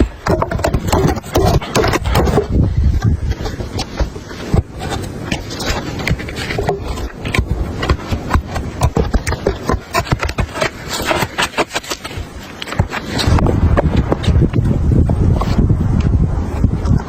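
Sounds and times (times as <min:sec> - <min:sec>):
sharp clicks knocks and scrapes: 0:00.0 - 0:14.6
low rumble: 0:13.2 - 0:17.0.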